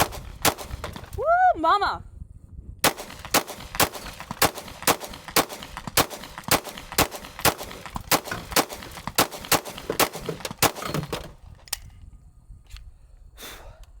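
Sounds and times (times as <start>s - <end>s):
pistol shots: 0.0s - 1.1s, 2.8s - 11.2s.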